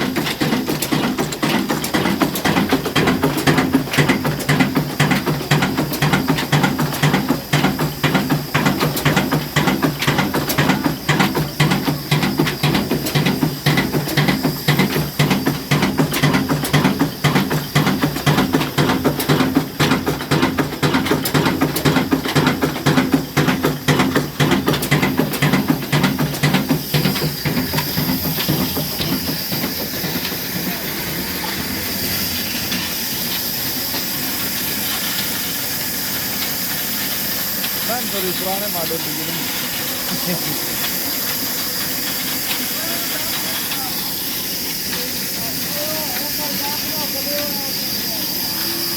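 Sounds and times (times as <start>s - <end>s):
diesel engine rhythmic beat: 0.0s - 32.9s
steady hiss: 23.1s - 48.9s.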